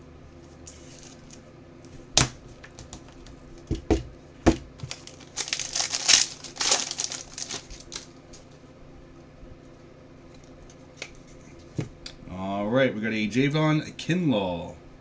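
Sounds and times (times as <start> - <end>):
card pack wrapper crinkling and tearing: 4.8 - 8.4.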